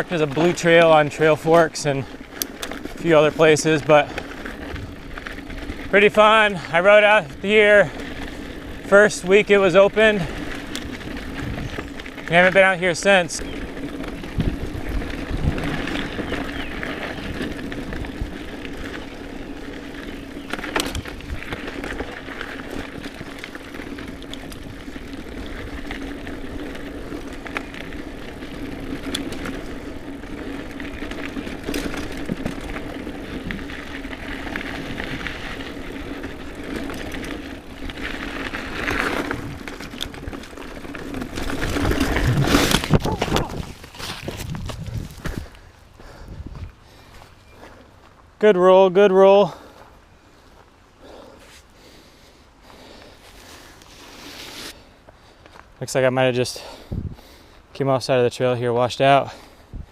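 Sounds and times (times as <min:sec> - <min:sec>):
bike rattling: 0:00.0 - 0:59.9
bike tyres rolling on dirt: 0:00.0 - 0:59.9
bike knocking over bumps: 0:20.4 - 0:45.6.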